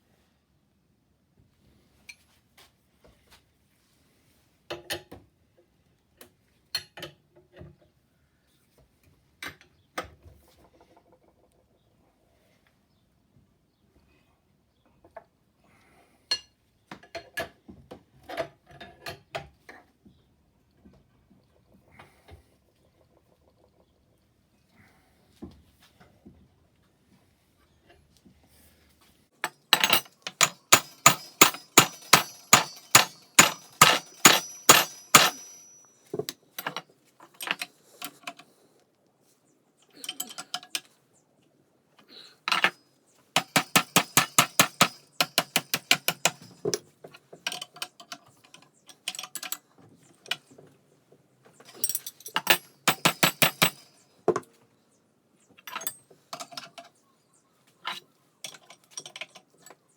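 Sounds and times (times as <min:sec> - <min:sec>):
hammer striking metal: 0:29.8 - 0:36.0, 0:43.4 - 0:46.6, 0:52.4 - 0:53.9.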